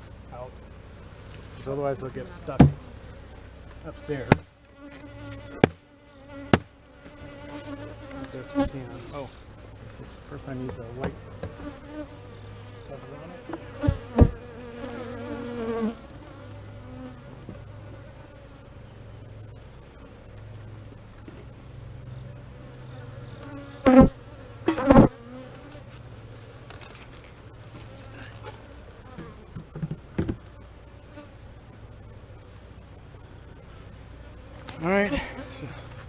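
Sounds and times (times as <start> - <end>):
bees buzzing: 0.0 - 36.0
knocks on hive: 2.5 - 2.8, 4.2 - 4.5, 5.6 - 5.8, 6.5 - 6.7, 10.6 - 11.7, 13.5 - 14.4, 29.2 - 30.4.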